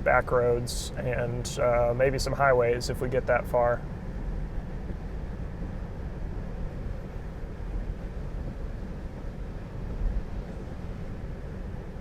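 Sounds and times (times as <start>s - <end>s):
road and tyre noise in car: 0.0s - 12.0s.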